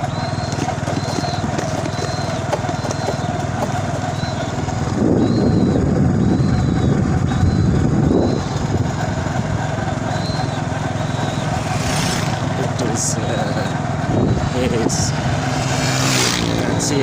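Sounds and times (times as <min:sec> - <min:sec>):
faint high chirp: 0:00.0 - 0:03.4, 0:04.0 - 0:04.6, 0:05.2 - 0:08.6, 0:10.0 - 0:11.6
vehicle engine running: 0:00.0 - 0:17.0.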